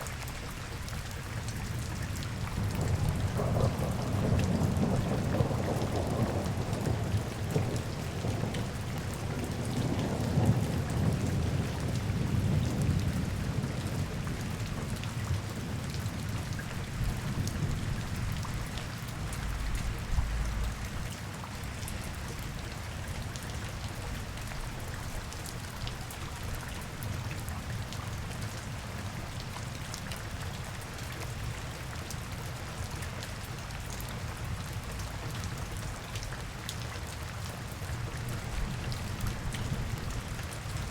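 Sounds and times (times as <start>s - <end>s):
rain falling on street: 0.0s - 40.9s
raindrop ticks: 17.4s - 21.1s.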